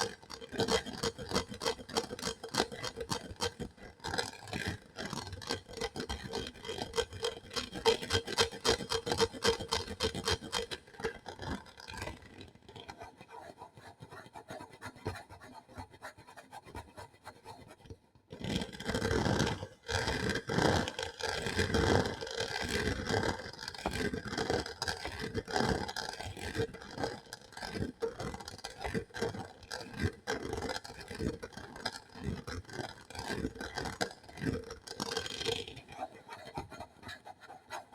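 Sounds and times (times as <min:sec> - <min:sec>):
scratching and scraping on object: 0:00.0 - 0:37.9.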